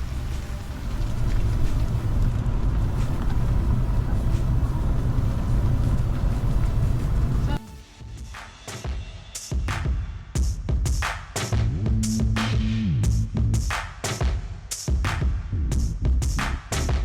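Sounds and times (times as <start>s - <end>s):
vehicle driving low rumble: 0.0s - 7.6s.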